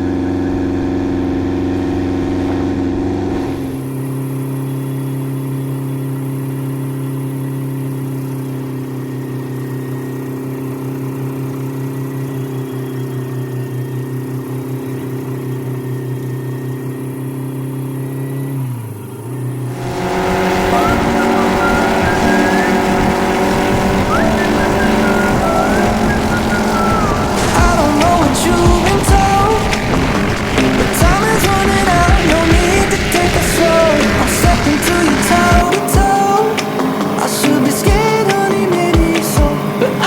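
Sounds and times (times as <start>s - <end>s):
helicopter engine and rotor drone: 0.0s - 40.0s
wavering higher tones: 19.7s - 40.0s.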